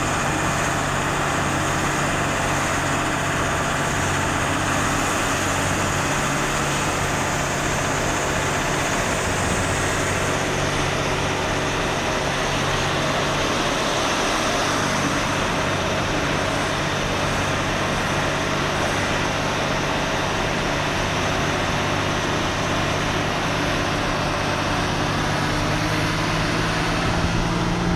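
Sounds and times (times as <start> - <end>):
road noise: 0.0 - 27.9
truck engine running: 0.0 - 27.9.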